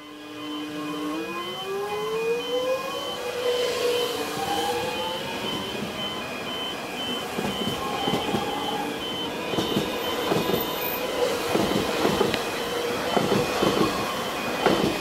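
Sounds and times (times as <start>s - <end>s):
train motor hum: 3.3s - 15.0s
train wheels clacking: 5.4s - 15.0s.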